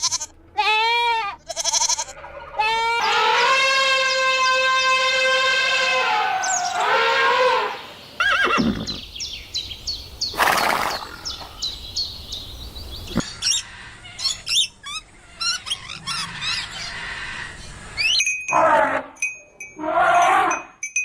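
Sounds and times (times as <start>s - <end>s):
horse whinnying: 6.4s - 9.0s
small birds chirping: 7.6s - 18.2s.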